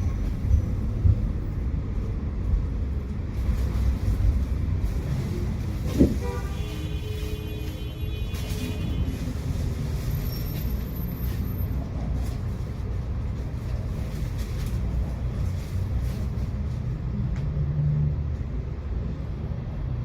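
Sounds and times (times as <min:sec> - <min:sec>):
tram wheels rumbling on rails: 0:00.0 - 0:20.0.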